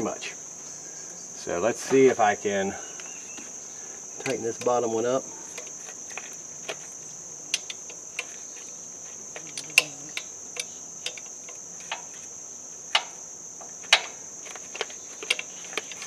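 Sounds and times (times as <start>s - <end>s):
crickets chirring: 0.0s - 16.0s
hand wrench clicking on a bolt: 7.5s - 8.4s, 9.4s - 12.3s, 12.9s - 13.2s, 13.8s - 16.0s.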